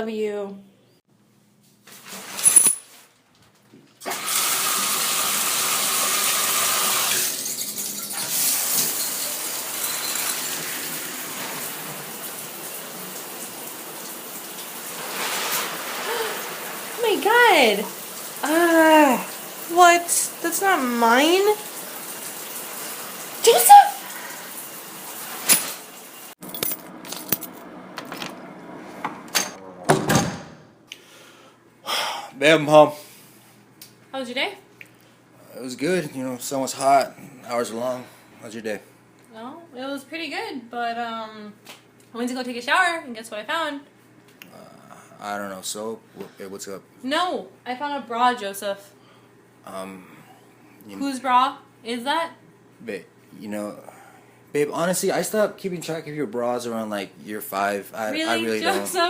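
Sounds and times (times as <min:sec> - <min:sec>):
shower water spraying: 0:04.1 - 0:26.4
keys jangling: 0:26.4 - 0:28.4.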